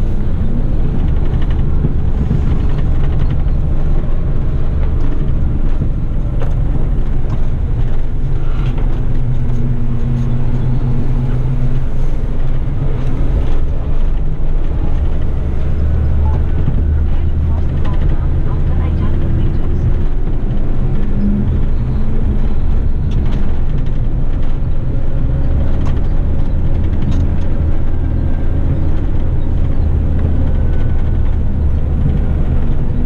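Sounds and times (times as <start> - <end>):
road noise: 0.0 - 33.0
truck diesel engine droning: 0.0 - 33.0.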